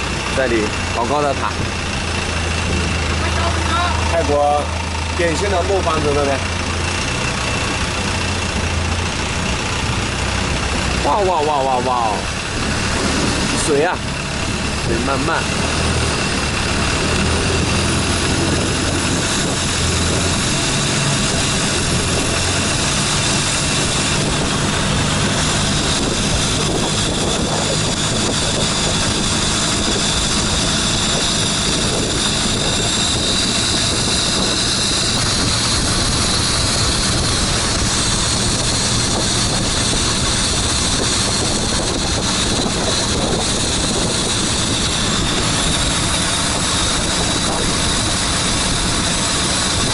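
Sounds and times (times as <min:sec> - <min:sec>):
motorboat engine hum: 0:00.0 - 0:49.9
wind and water rushing: 0:10.0 - 0:49.9.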